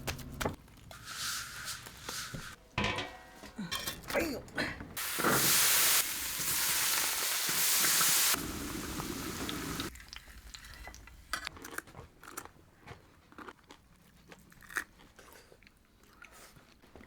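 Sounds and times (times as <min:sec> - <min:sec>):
food sizzling in hot oil: 0:05.0 - 0:09.9.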